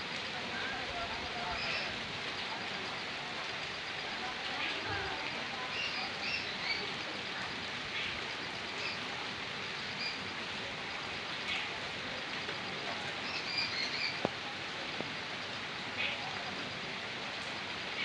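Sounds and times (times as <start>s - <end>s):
running water: 0.0s - 18.0s
steady rain: 0.0s - 18.0s
birds chirping: 13.2s - 14.3s.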